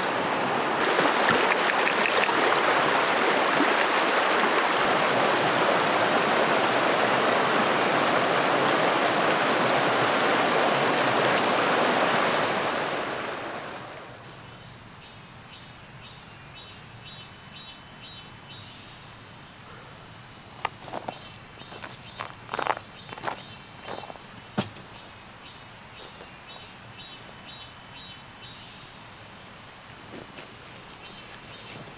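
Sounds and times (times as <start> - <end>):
insect chirping: 0.0 - 7.8, 11.1 - 31.9
rushing creek water: 0.0 - 14.2, 20.6 - 24.8
high insect drone: 0.8 - 31.9.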